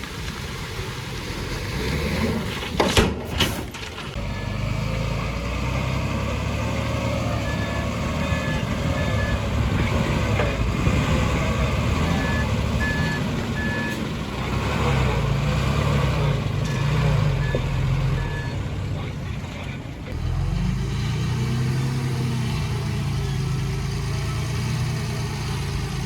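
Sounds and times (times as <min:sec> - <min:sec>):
diesel construction machinery running: 0:00.0 - 0:26.0
reversing alarm beeping: 0:07.3 - 0:09.5, 0:12.1 - 0:14.0.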